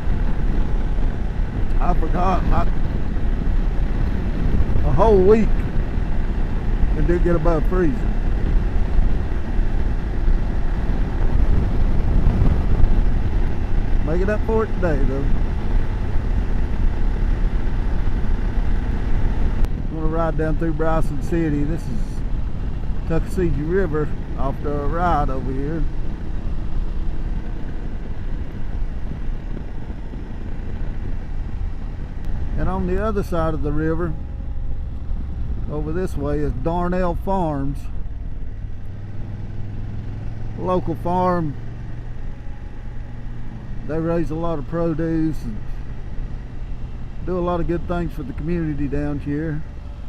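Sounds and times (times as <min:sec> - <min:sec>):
wind rushing: 0:00.0 - 0:20.1
motorcycle engine: 0:00.0 - 0:50.0
road noise: 0:00.0 - 0:50.0
wind rush: 0:00.0 - 0:50.0.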